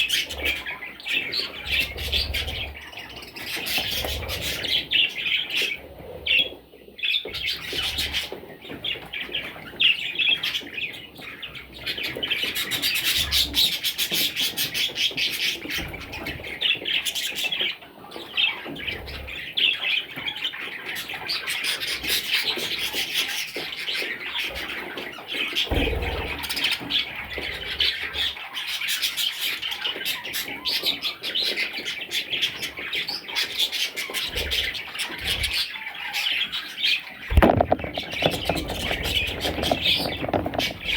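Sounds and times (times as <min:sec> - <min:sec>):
budgerigars chirping and squawking: 0:00.0 - 0:40.9
dull bump: 0:37.3 - 0:40.9.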